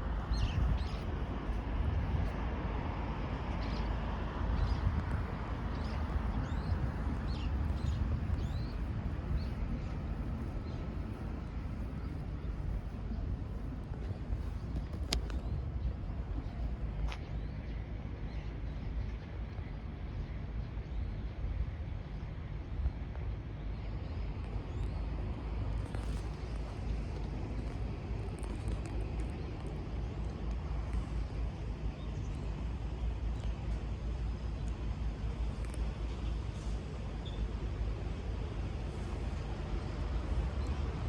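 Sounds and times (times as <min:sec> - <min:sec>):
low rumble: 0:00.0 - 0:17.2.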